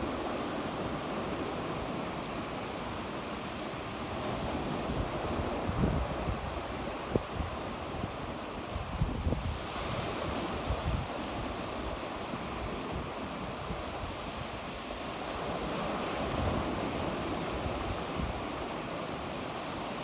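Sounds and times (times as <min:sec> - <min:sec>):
sea waves breaking on shore: 0:00.0 - 0:20.0
wind rumble on microphone: 0:04.2 - 0:18.9.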